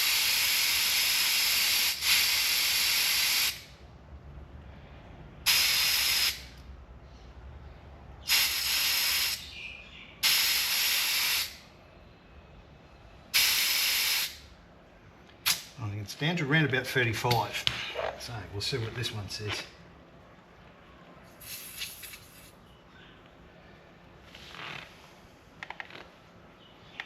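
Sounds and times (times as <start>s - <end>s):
air hissing from tyre valve: 0.0s - 3.8s, 5.4s - 6.6s, 8.2s - 9.5s, 10.2s - 11.7s, 13.3s - 14.5s, 15.4s - 15.7s, 21.4s - 22.4s.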